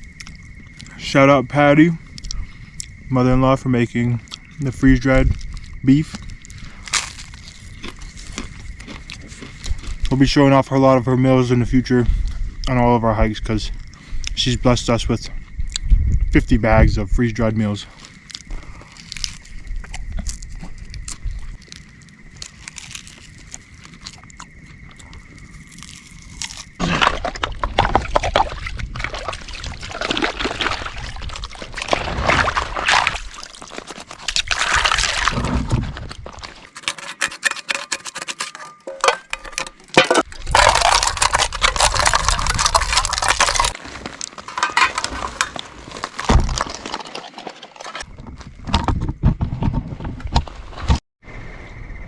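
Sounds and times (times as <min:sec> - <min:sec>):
dishes scrubbing: 0:26.8 - 0:43.8, 0:44.4 - 0:46.0
water sloshing and pouring: 0:26.8 - 0:48.1
dishes clattering: 0:36.7 - 0:43.0, 0:44.5 - 0:45.6.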